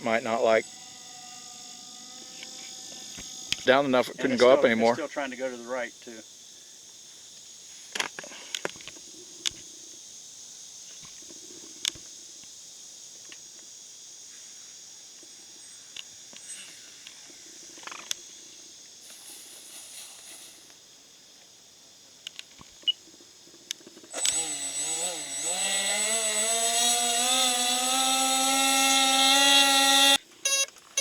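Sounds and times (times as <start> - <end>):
crickets chirring: 0.0 - 31.0
sharp clicks: 23.7 - 24.4.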